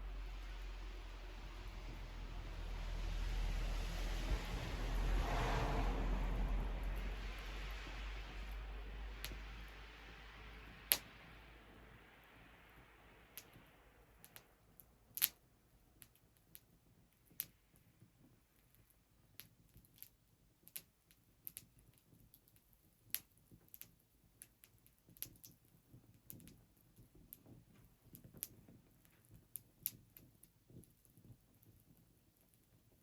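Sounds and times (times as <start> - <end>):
soft hiss: 0.0 - 15.4
wood fire crackling: 0.0 - 15.4, 16.0 - 33.0.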